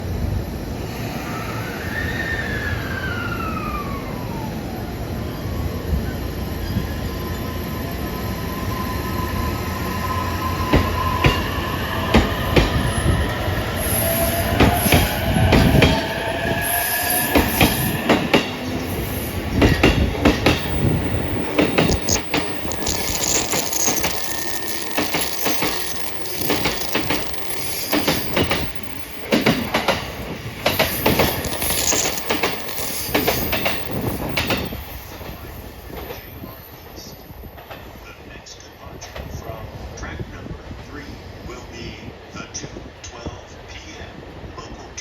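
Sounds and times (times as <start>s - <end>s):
electric train motor whine: 1.3s - 36.0s
train wheels clacking on rail joints: 17.0s - 36.4s.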